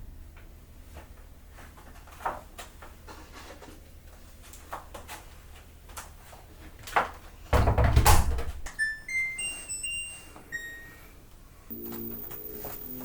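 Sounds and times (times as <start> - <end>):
low steady hum: 8.8 - 13.0.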